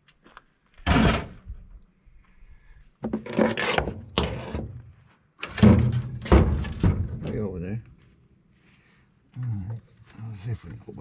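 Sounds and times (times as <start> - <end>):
loud clunk: 0.8 - 1.5.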